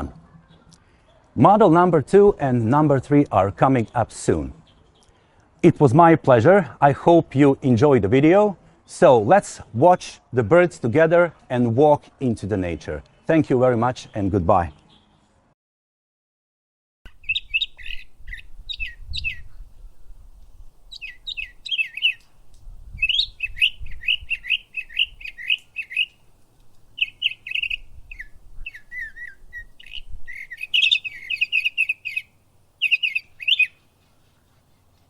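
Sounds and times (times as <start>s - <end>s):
small birds chirping: 4.6s - 5.4s, 17.1s - 35.0s.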